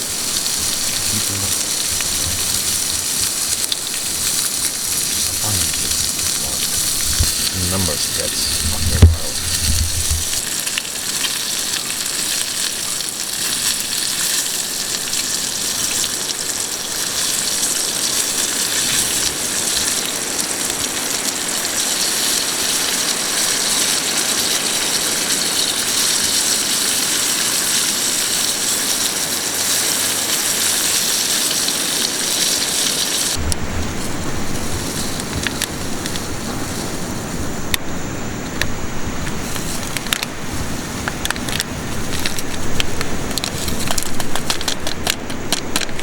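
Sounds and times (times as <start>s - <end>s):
food sizzling in a pan: 0.0s - 37.3s
low rumble: 0.4s - 10.4s, 33.4s - 37.7s.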